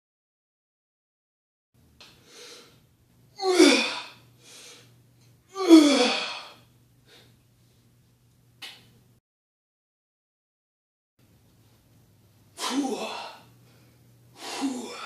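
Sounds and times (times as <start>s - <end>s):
person exhaling loudly: 12.6s - 13.5s, 14.4s - 15.0s.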